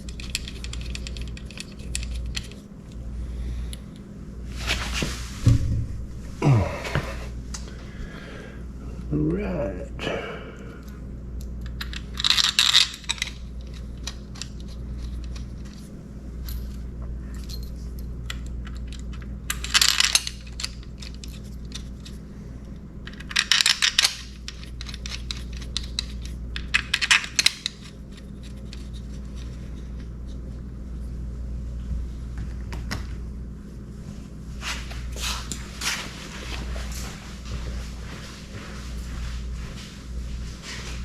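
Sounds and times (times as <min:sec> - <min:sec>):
steady low hum: 0:00.0 - 0:41.0
metal tools clinking and rattling: 0:11.8 - 0:15.8.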